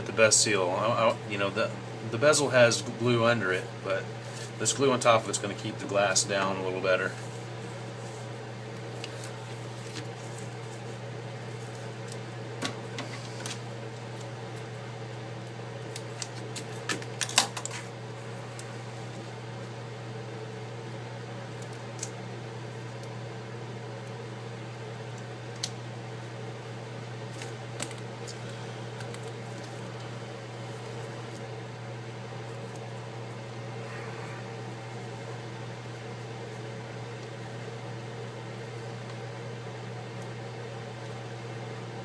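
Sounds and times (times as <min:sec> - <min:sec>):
motor humming: 0:27.2 - 0:41.2.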